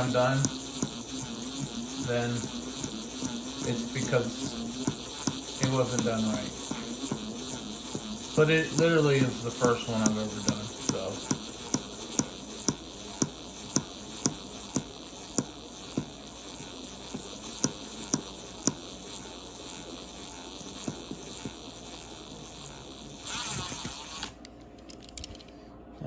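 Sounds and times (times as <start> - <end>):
electric drill boring into steel: 0.0 - 24.4
sharp clicks: 8.7 - 16.1.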